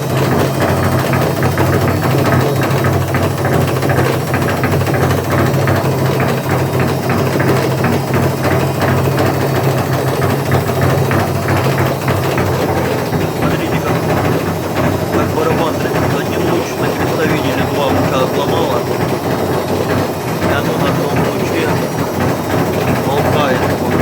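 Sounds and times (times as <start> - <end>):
washing machine drum rattling: 0.0 - 24.0.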